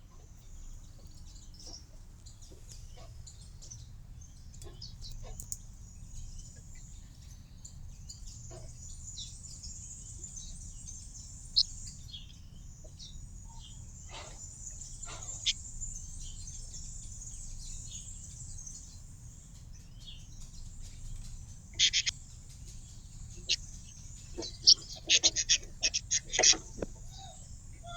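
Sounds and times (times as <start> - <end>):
small birds chirping: 0.0 - 27.9
steady high hiss: 21.7 - 27.0.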